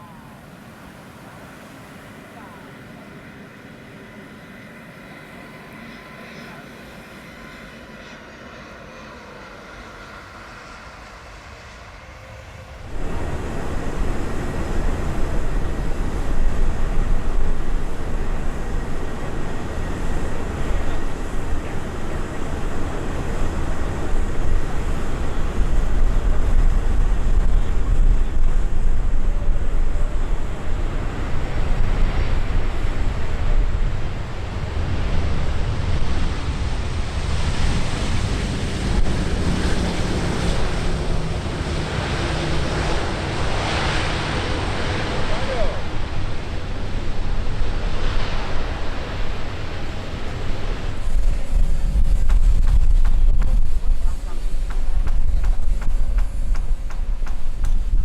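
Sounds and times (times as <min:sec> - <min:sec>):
jet airliner roar: 0:00.0 - 0:58.0
jet engine whine: 0:00.0 - 0:58.0
wind buffeting microphone: 0:12.6 - 0:58.0.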